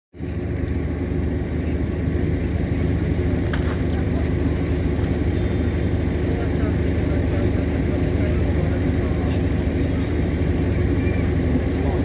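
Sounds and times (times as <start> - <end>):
low mechanical drone: 0.2 - 12.0.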